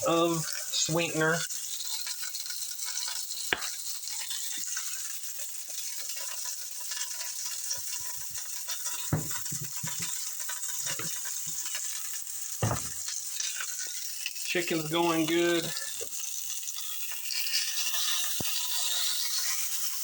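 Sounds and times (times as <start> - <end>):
chicken and onion sizzling: 0.0 - 20.0
knocks: 9.1 - 10.1, 12.6 - 13.1.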